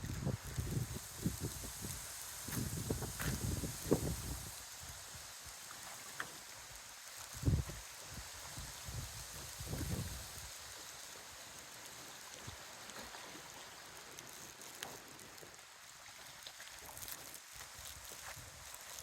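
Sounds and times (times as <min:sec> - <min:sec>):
wind buffeting microphone: 0:00.0 - 0:04.6, 0:08.8 - 0:10.3.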